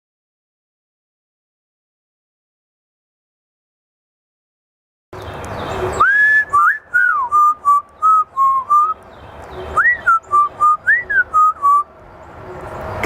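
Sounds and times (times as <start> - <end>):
parrot whistling a tune: 6.0 - 9.0, 9.8 - 11.9.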